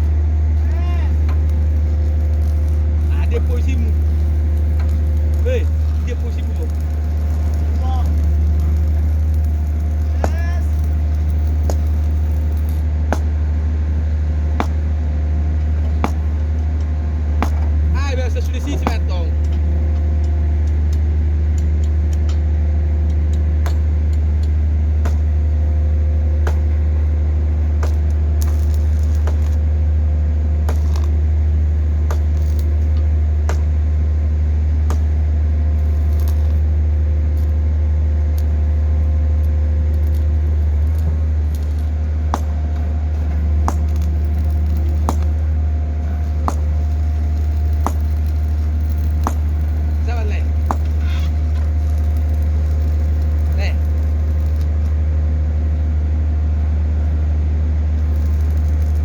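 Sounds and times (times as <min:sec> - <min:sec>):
pile driver deep hum: 0:00.0 - 0:59.0.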